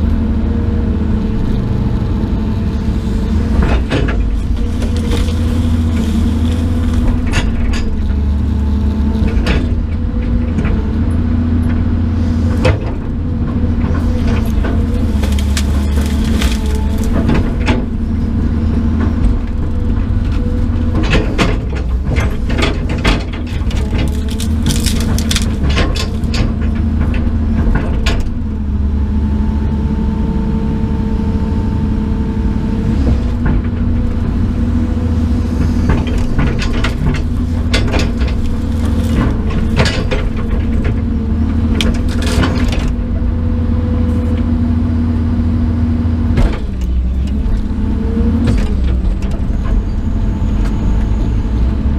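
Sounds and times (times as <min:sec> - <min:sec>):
bonfire burning with low rumble: 0:00.0 - 0:49.2
machine-like hum: 0:00.0 - 0:51.9
wood crackling and popping: 0:03.4 - 0:08.5, 0:13.8 - 0:19.7, 0:21.0 - 0:27.5, 0:36.0 - 0:43.0.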